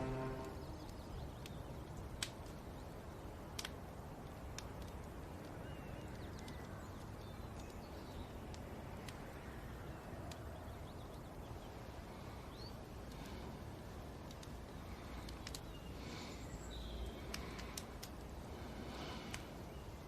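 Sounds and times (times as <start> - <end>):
low steady hiss: 0.0 - 20.0
sharp clicks: 3.5 - 9.3, 14.2 - 14.6, 15.2 - 15.8, 17.1 - 18.3, 19.3 - 19.5.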